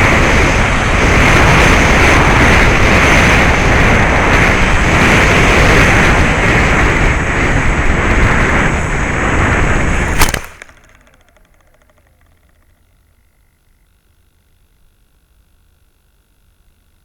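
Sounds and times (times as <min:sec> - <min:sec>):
wind rushing over microphone: 0:00.0 - 0:10.7
propeller motor whine: 0:00.0 - 0:17.0
sharp crack: 0:08.6 - 0:12.8.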